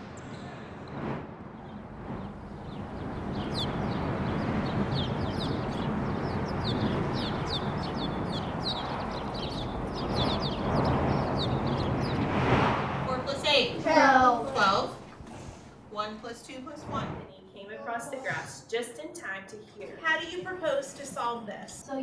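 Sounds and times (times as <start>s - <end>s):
steady rushing noise: 0.0s - 17.4s
small birds chirping: 1.7s - 12.5s.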